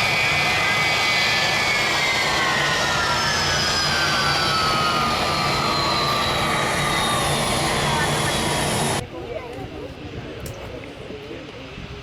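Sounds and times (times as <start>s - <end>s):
jet engines whining: 0.0s - 9.0s.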